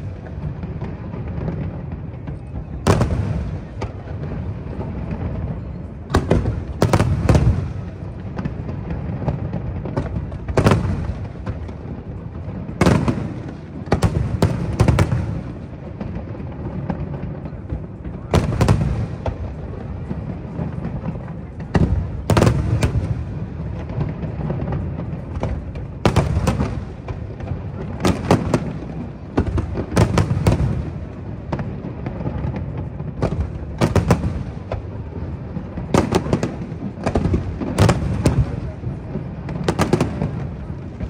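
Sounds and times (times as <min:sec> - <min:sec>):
fireworks bursting bangs: 0:00.0 - 0:41.0.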